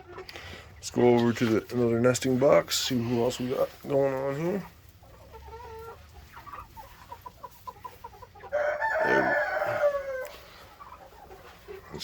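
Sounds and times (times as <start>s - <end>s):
chickens clucking: 0.0s - 12.0s
rooster crowing: 8.5s - 10.4s.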